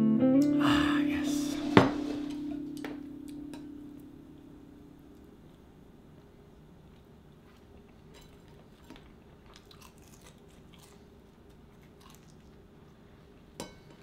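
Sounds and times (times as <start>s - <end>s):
person chewing food: 6.8s - 13.6s.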